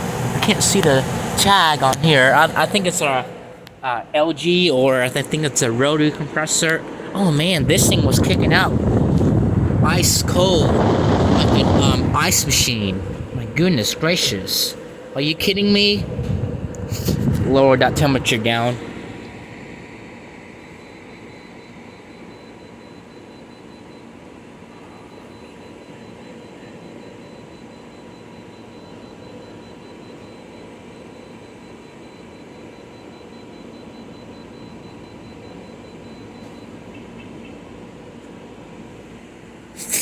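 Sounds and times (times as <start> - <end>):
air conditioner fan whoosh: 0.0 - 23.0, 38.4 - 40.0
compressor hum: 0.0 - 40.0.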